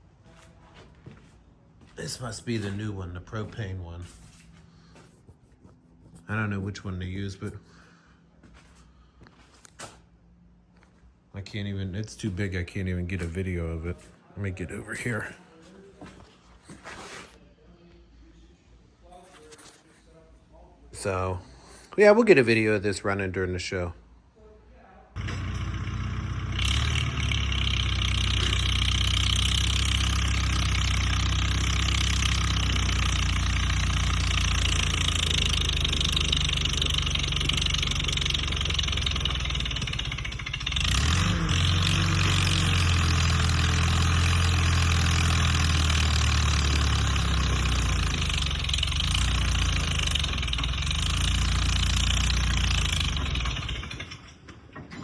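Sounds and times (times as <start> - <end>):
vehicle engine running: 25.2 - 54.1.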